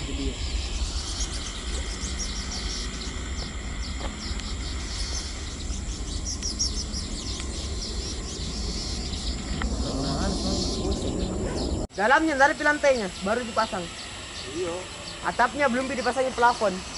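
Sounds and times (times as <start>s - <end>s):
low rumble: 0.0s - 11.9s
high insect drone: 0.0s - 16.9s
small birds chirping: 0.0s - 16.9s.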